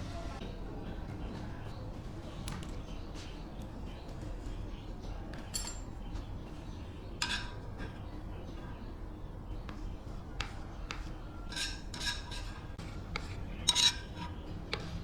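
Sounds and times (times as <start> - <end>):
loud ringing metal clinks: 5.5 - 5.9
metal parts clinking: 5.5 - 5.9.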